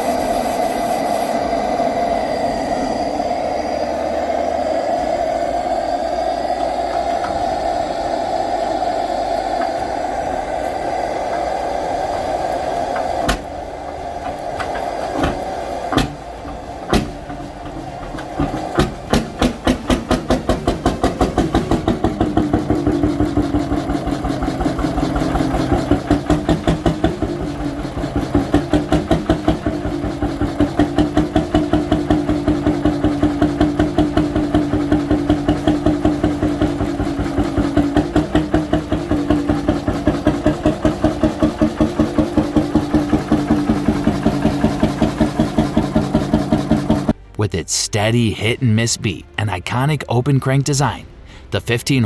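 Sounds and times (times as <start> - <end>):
steady rushing hum: 0.0 - 28.3
old engine starting and running: 0.0 - 47.4.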